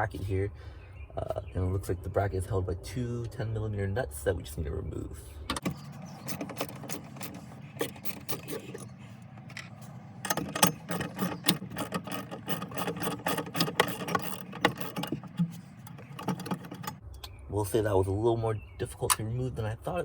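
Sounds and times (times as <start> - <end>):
socket ratchet clicking: 9.5 - 17.0.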